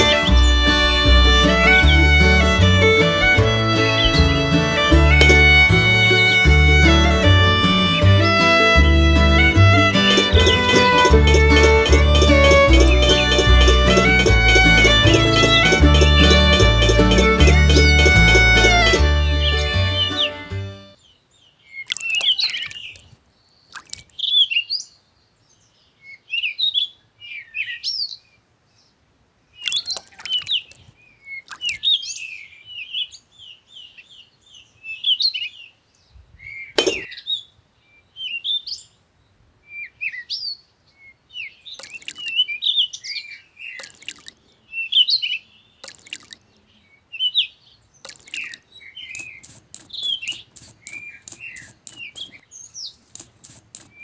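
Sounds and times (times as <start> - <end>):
sharp clicks or taps: 0.0 - 7.4, 8.2 - 19.1, 49.2 - 52.4, 53.0 - 54.0
small birds chirping: 0.0 - 54.0.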